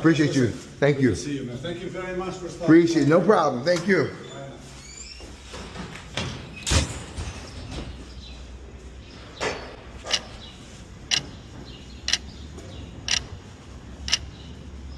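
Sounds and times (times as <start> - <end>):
sharp clicks: 12.1 - 12.3, 14.1 - 14.3.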